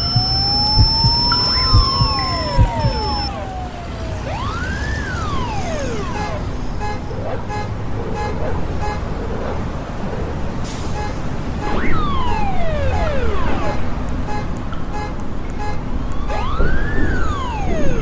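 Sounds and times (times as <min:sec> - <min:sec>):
siren-like sliding tones: 0:00.0 - 0:06.4.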